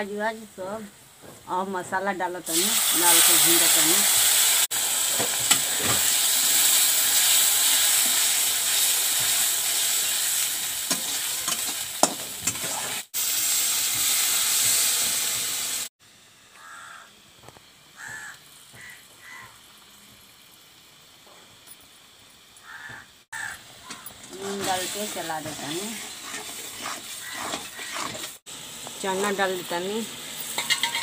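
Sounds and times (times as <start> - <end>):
paste sizzling in hot oil: 2.4 - 15.9, 16.6 - 31.0
metal spatula scraping and clinking: 23.9 - 28.4, 30.5 - 31.0.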